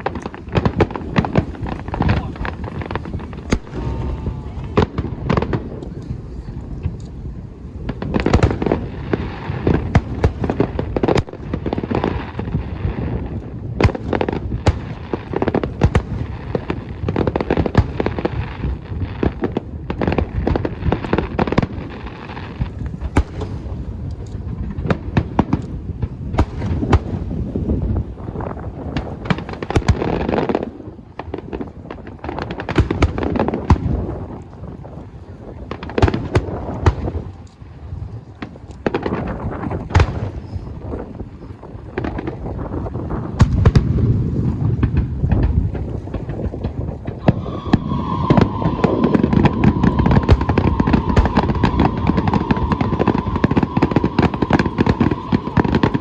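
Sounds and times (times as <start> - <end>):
fireworks bursting: 0.0 - 56.0
low rumble: 0.9 - 8.1, 44.1 - 56.0.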